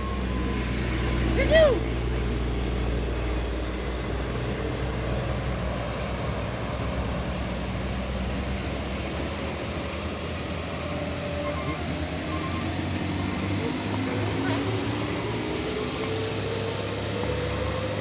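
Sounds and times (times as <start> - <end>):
diesel truck engine under load: 0.0 - 18.0.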